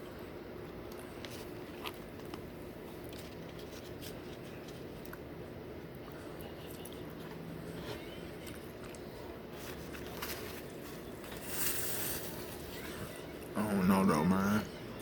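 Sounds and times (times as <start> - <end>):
quiet chewing: 0.7 - 5.3, 5.9 - 11.4.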